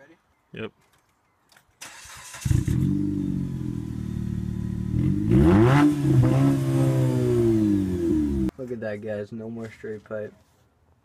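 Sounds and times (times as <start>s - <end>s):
engine cranking and starting: 1.8s - 2.9s
engine revving: 2.0s - 8.5s.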